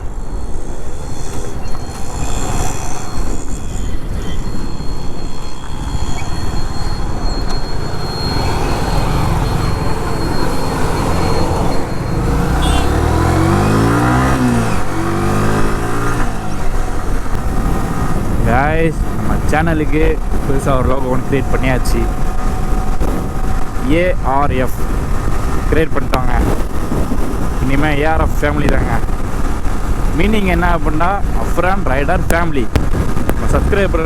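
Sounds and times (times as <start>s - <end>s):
wind rushing over microphone: 0.0s - 34.0s
motorcycle engine running: 8.5s - 18.4s.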